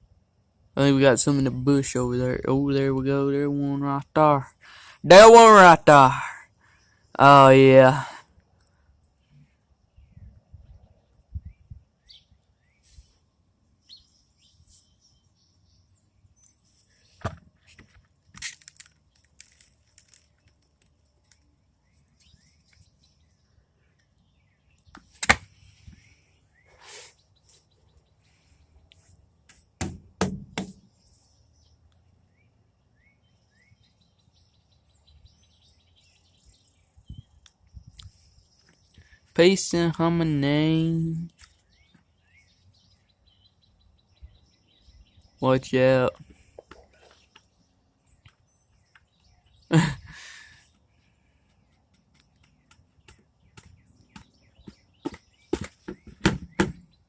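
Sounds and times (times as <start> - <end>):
small birds chirping: 0.0 - 57.0
sharp knocks: 29.8 - 30.9, 52.7 - 56.9.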